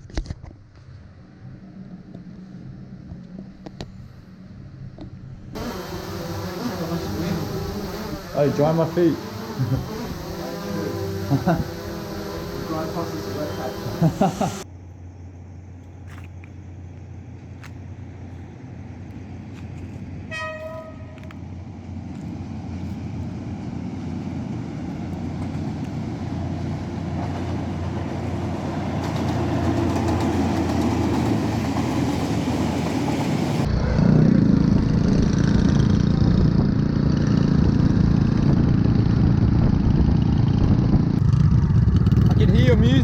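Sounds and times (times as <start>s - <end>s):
vehicle and road noise: 0.0s - 43.0s
horn toot: 5.6s - 14.6s, 20.3s - 21.3s.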